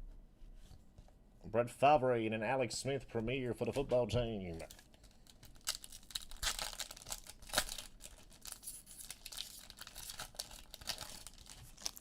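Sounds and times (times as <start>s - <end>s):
foil wrappers tearing and crinkling: 4.6s - 12.0s.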